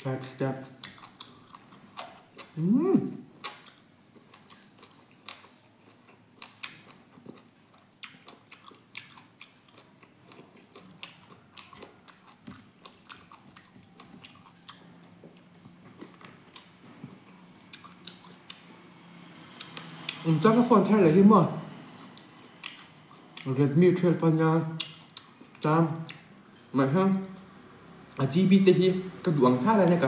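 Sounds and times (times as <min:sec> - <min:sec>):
chewing and biting food: 0:00.6 - 0:20.2, 0:22.0 - 0:23.5, 0:24.8 - 0:26.3
wet mouth clicks: 0:24.8 - 0:25.3.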